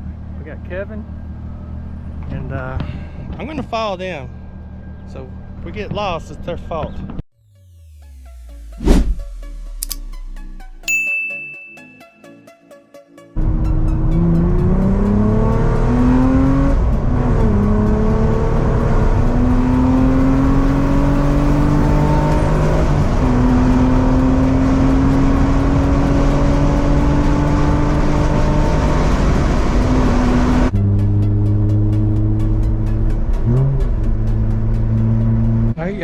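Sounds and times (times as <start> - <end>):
car engine accelerating through gears: 13.4 - 35.8.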